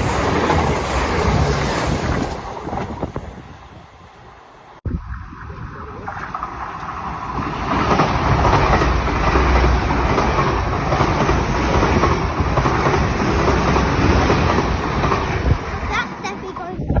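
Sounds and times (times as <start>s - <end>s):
train rumble and wheel noise: 0.0s - 17.0s.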